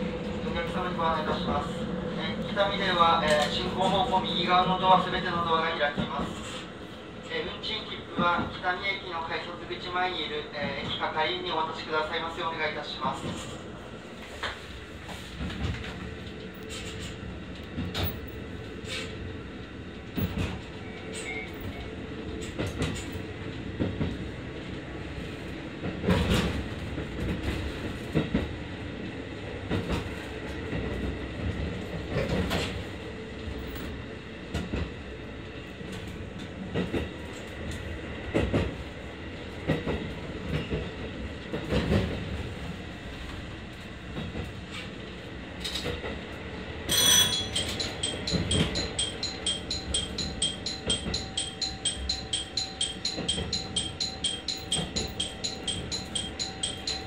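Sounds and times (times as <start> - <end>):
train running noise inside: 0.0 - 57.0.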